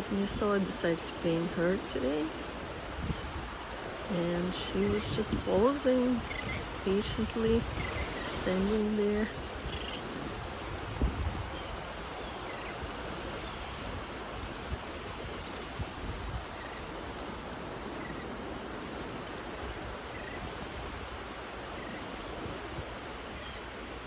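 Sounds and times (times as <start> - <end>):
sea surf on a beach: 0.0 - 24.0.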